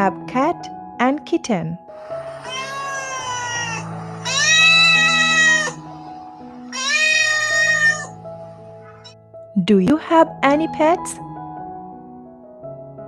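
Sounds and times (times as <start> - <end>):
soft background music: 0.0 - 13.0
cat meowing: 2.2 - 9.1.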